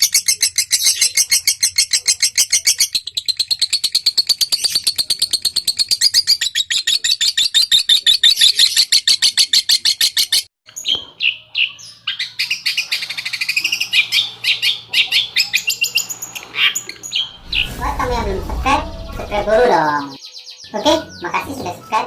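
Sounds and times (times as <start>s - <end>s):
rapid bird chirping: 0.0s - 10.4s.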